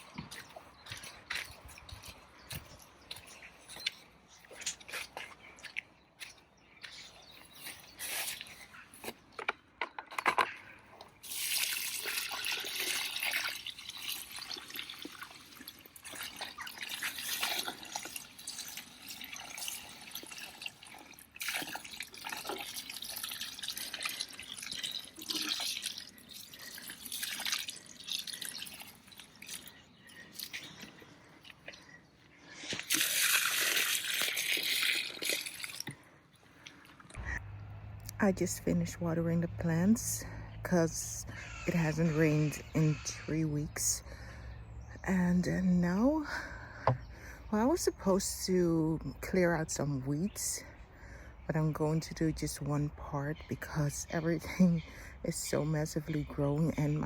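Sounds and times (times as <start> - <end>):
water dripping and splashing: 11.1 - 32.0, 32.6 - 37.2.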